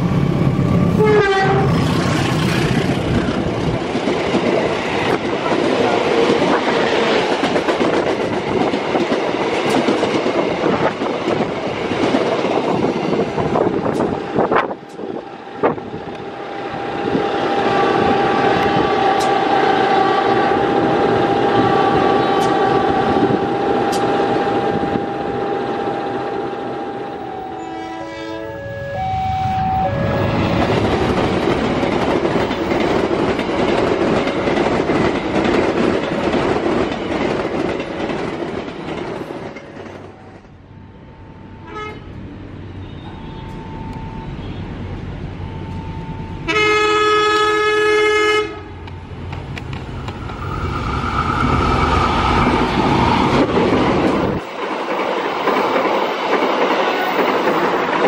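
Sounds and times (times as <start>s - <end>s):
trains passing with rumbling roar: 0.0s - 58.0s
locomotive horn: 0.9s - 1.9s, 17.1s - 20.8s, 21.4s - 30.6s, 41.6s - 43.6s, 46.4s - 48.8s
wheels clicking over rail joints: 30.5s - 40.2s.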